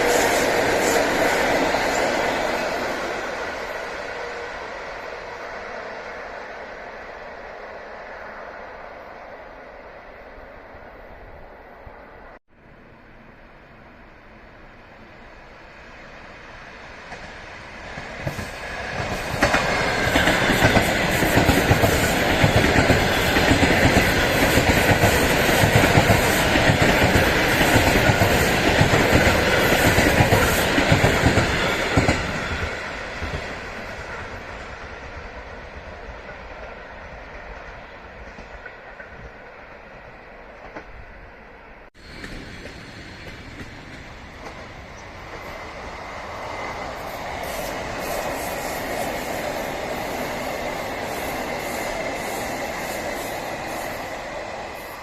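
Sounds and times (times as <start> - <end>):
train wheels clattering on rails: 17.0 - 39.5, 42.0 - 55.0.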